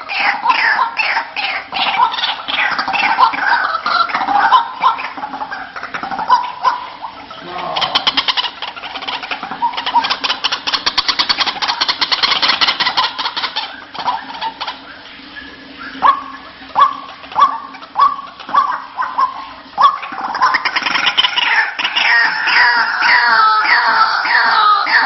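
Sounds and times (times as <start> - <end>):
waterhen calls: 0.0 - 25.0.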